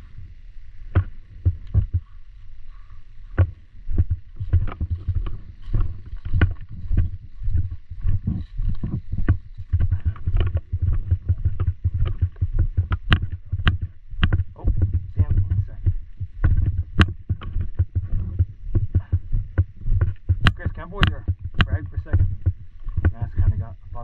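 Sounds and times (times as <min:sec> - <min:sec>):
footsteps and gear jostling: 0:00.0 - 0:24.0.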